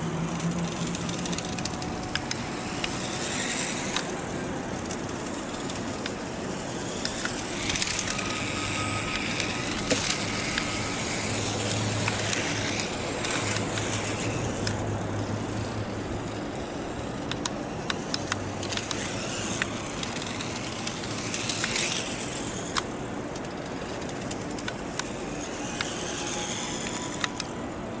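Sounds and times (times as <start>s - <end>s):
toy motorcycle motor rushing: 0.0s - 28.0s
sharp clicks: 17.2s - 22.1s.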